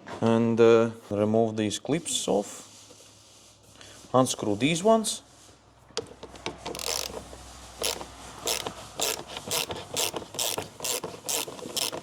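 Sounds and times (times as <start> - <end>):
ratchet tool clicking: 6.7 - 12.0.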